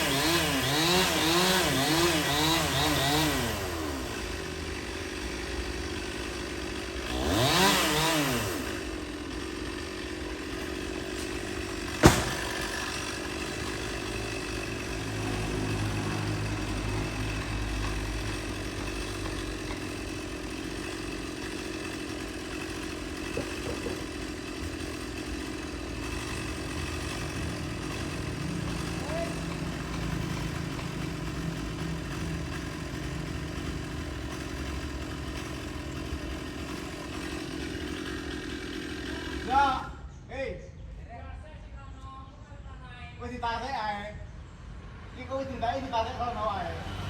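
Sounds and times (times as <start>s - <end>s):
chainsaw idling and revving: 0.0s - 40.2s, 45.0s - 47.0s
sharp knock: 12.0s - 12.6s.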